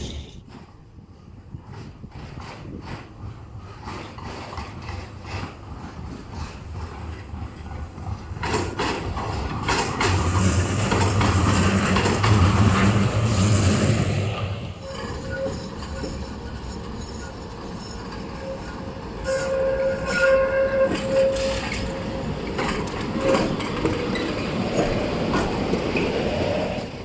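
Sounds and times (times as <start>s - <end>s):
rail rumble: 0.0s - 27.0s
wheels clicking over rail joints: 1.7s - 13.7s
tram whining tone: 10.0s - 26.8s.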